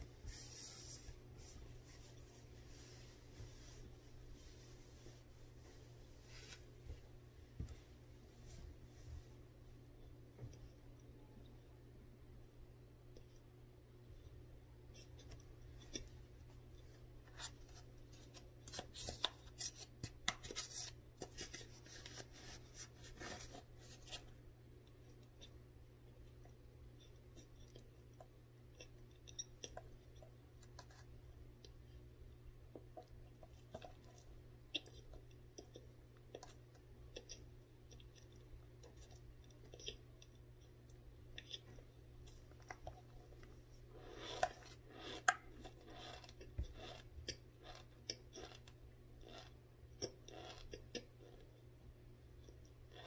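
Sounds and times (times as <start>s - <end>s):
chewing crisp crunches: 44.0s - 51.5s.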